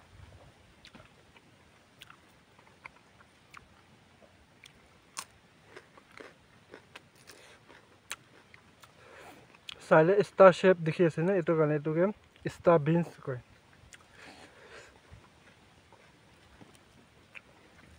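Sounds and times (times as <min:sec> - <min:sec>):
person chewing crunchy food: 0:00.8 - 0:03.9, 0:04.6 - 0:09.8, 0:13.9 - 0:17.9.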